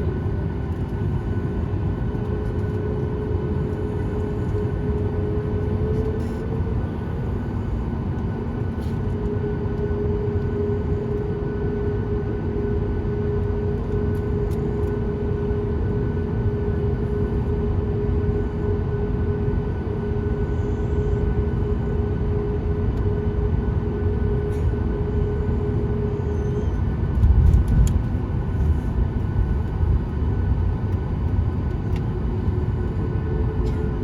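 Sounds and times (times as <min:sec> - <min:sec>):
steady engine hum: 0:00.0 - 0:34.0
jet engines rumbling: 0:23.7 - 0:34.0.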